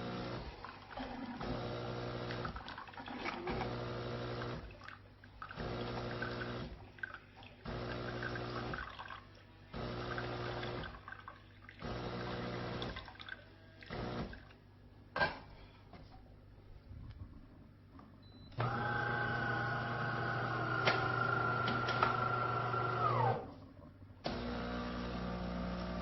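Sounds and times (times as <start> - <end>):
espresso machine pump humming: 0.0 - 0.6, 1.4 - 2.6, 3.4 - 4.6, 5.6 - 6.8, 7.6 - 8.9, 9.7 - 10.9, 11.8 - 13.0, 13.9 - 14.3, 18.2 - 23.6, 24.3 - 26.0.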